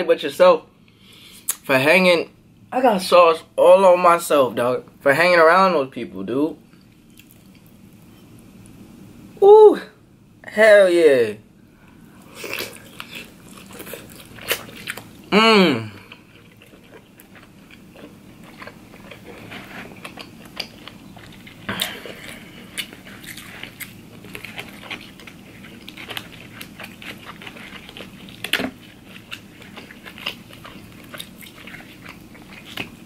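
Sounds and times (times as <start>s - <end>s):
wet chewing and mouth smacking: 6.7s - 8.0s, 12.3s - 15.3s, 15.9s - 33.0s.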